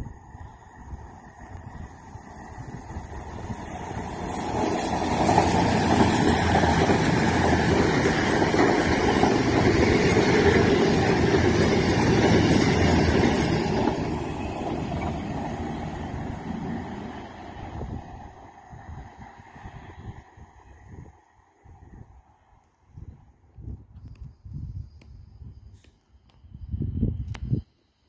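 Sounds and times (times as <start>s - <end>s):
diesel train running past: 0.0s - 20.9s.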